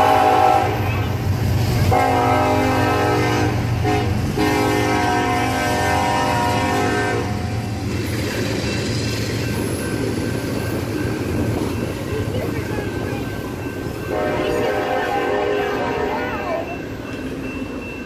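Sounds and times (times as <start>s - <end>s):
train horn blasts: 0.0s - 0.9s, 1.8s - 7.6s, 14.1s - 16.6s.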